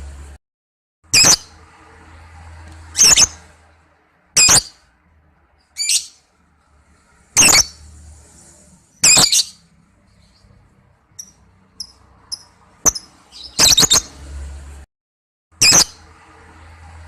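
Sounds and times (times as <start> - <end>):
lovebird shrill calls: 1.2 - 1.5, 2.9 - 3.4, 4.4 - 4.8, 5.8 - 6.2, 7.4 - 7.8, 9.0 - 9.6, 11.2 - 14.1, 15.6 - 16.0
short high bird chirps: 2.9 - 3.4, 4.4 - 4.8, 5.8 - 6.2, 9.0 - 9.6, 11.2 - 14.2.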